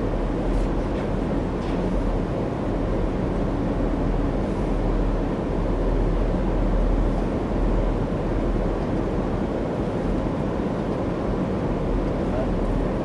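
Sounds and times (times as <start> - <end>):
moving train rumble from aboard: 0.0 - 13.0.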